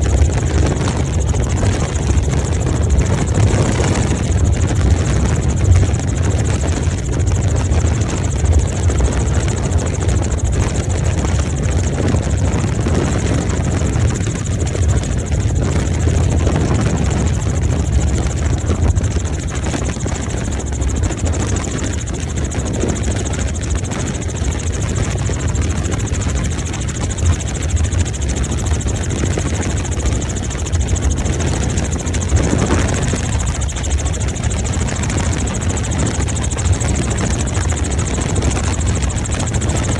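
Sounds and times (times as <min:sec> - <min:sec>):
helicopter rotor drone: 0:00.0 - 0:39.9
helicopter engine hiss: 0:13.6 - 0:39.9.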